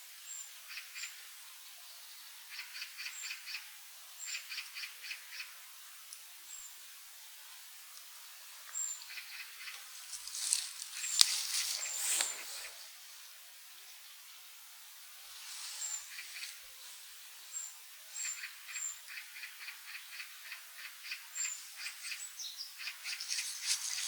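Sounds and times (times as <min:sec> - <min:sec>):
small birds chirping: 0:00.2 - 0:24.0
rustling: 0:09.7 - 0:13.0, 0:23.0 - 0:24.0.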